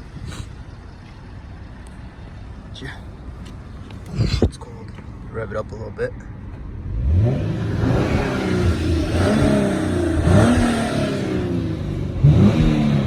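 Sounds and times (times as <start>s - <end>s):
car engine revving: 6.5s - 13.0s.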